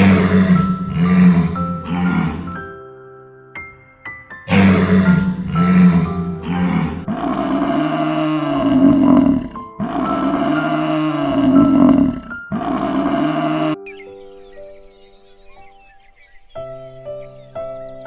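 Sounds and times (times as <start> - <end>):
big cat roaring: 0.0 - 2.7, 4.5 - 13.8
background music: 0.0 - 18.0.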